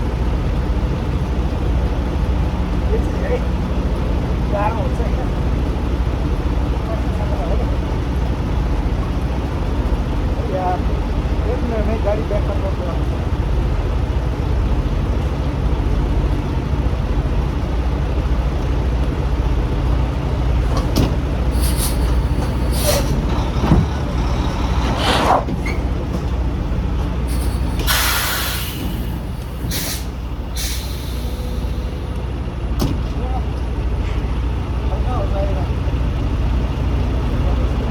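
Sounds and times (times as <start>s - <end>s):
diesel truck engine idling: 0.0s - 37.9s
air brake hisses: 21.5s - 23.3s, 24.6s - 25.8s, 27.2s - 32.0s.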